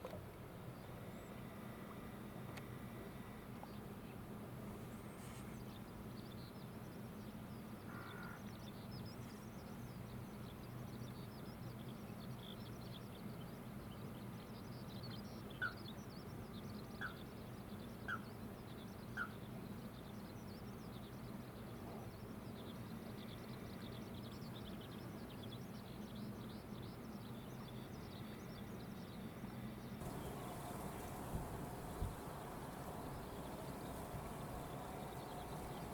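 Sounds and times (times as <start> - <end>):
birds chirping: 30.0 - 35.9
low background hum: 30.0 - 35.9.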